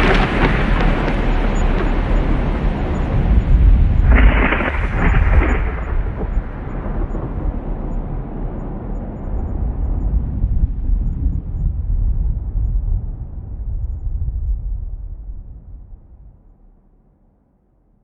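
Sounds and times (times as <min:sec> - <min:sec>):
sharp thunder peal: 0:00.0 - 0:12.6
thunder rumbling: 0:00.0 - 0:16.4.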